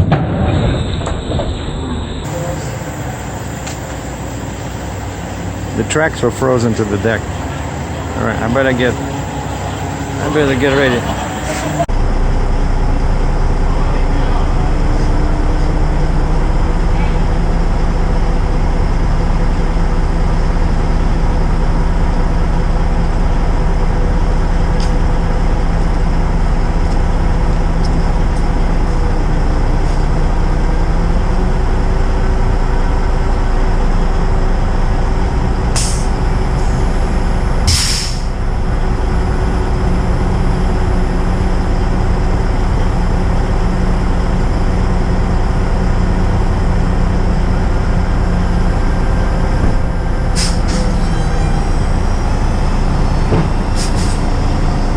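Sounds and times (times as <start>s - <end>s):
diesel engine running: 0.0s - 54.9s
air brake hisses: 35.8s - 36.2s, 37.7s - 38.4s, 50.3s - 50.9s, 53.8s - 54.2s.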